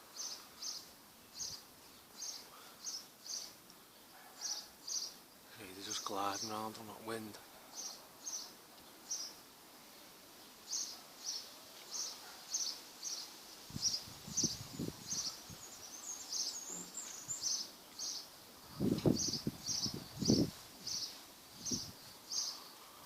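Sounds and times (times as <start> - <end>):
small bird chirping: 0.0 - 6.7, 7.7 - 9.5, 10.4 - 22.9.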